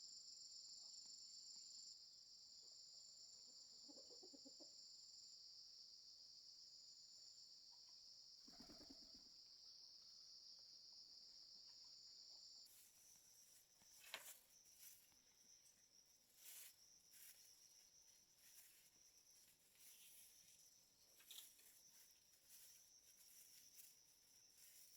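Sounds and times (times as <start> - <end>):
insects chirring: 8.4 - 24.9.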